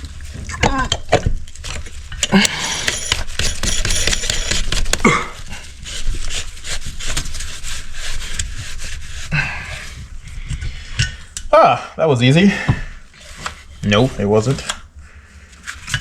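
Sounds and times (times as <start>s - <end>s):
metal parts scraping: 1.6s - 5.0s.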